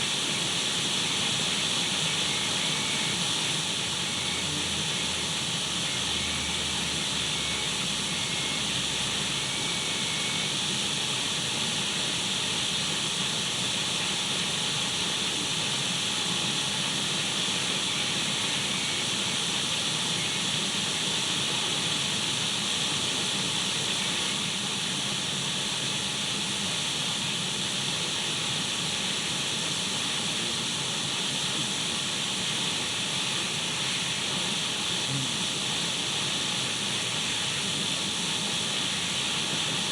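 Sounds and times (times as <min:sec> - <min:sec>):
radio static hiss: 0:01.1 - 0:07.6, 0:29.9 - 0:39.9.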